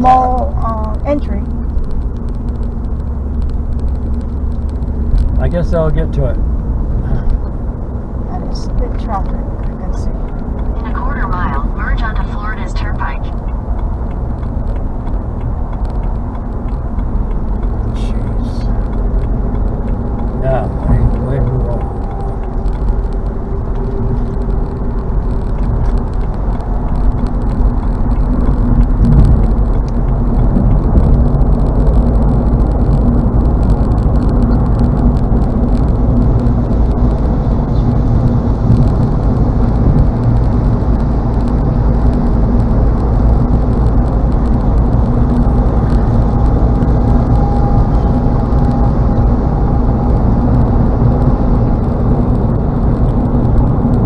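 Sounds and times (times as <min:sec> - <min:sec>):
car road and engine noise: 0:00.0 - 0:54.0.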